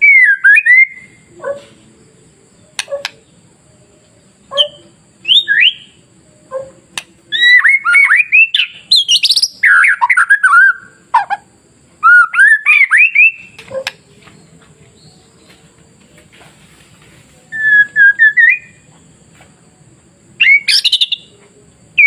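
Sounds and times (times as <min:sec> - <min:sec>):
bird singing whistled notes: 0:00.0 - 0:01.4, 0:02.6 - 0:11.4, 0:12.0 - 0:15.6, 0:17.5 - 0:18.9, 0:20.4 - 0:21.4.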